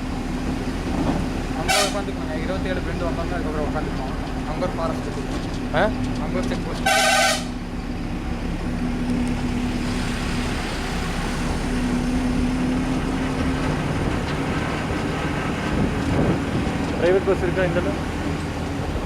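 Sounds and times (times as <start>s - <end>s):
lorry diesel engine running: 0.0s - 19.0s
horn blast: 1.6s - 2.1s, 6.8s - 7.6s.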